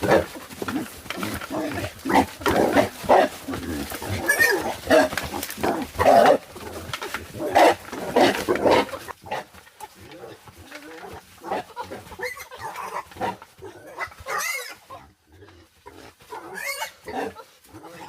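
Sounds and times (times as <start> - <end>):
wild boar grunting: 0.0 - 18.0.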